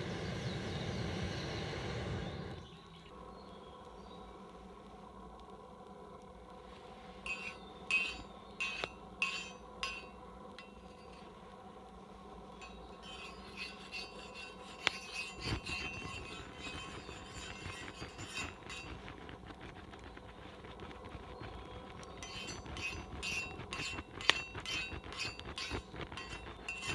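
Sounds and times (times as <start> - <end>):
scraping on iron griddle: 6.8 - 11.5, 12.3 - 26.9.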